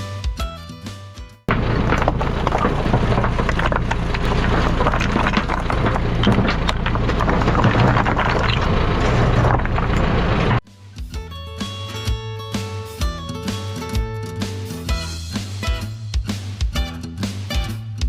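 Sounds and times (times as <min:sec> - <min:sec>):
guitar background music: 0:00.0 - 0:02.0, 0:10.7 - 0:18.0
excavator diesel engine: 0:01.5 - 0:10.6
metal clanks and scraping: 0:01.5 - 0:10.6.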